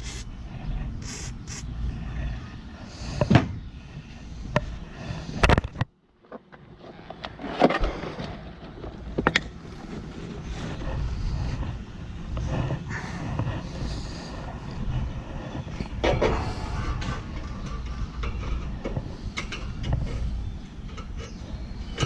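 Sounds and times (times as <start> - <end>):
aerosol spray hissing: 0.0 - 0.3, 1.0 - 1.7
low steady rumble: 0.0 - 5.5, 7.1 - 22.0.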